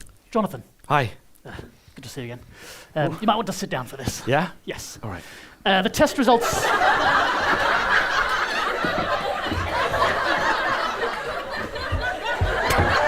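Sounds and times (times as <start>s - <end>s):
audience laughing: 6.0s - 13.0s
low thuds: 7.4s - 13.0s.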